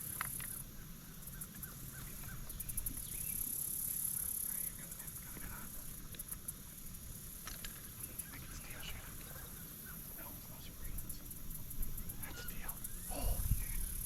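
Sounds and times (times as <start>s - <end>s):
faint bird calls: 0.0s - 6.4s, 7.7s - 14.0s
insects trilling: 0.0s - 14.0s
low wind rumble: 8.3s - 14.0s.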